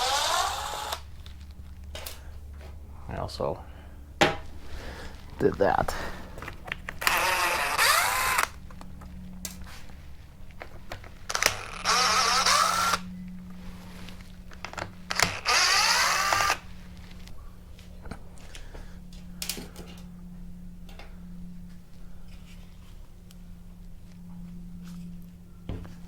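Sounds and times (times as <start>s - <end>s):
cordless drill running: 0.0s - 1.2s, 7.0s - 8.6s, 11.3s - 13.2s, 15.0s - 16.8s
clicks and knocks of handling parts: 17.2s - 20.2s.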